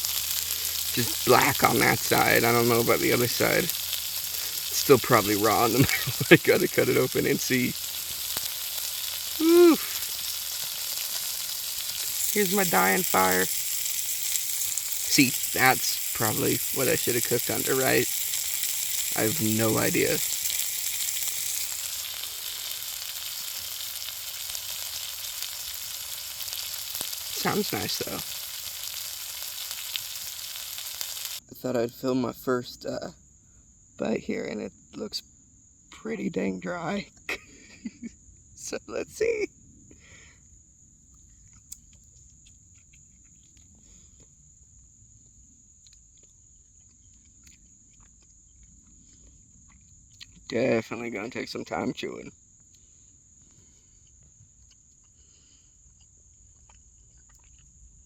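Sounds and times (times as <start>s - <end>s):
embers hissing: 0.0s - 31.4s
faint fire crackles: 0.0s - 31.4s
insect trill: 0.0s - 58.0s.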